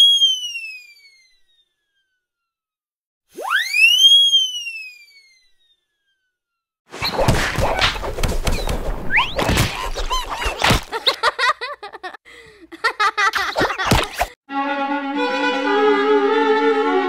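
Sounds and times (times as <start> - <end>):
cats fighting thumps and slaps: 7.0 - 11.0.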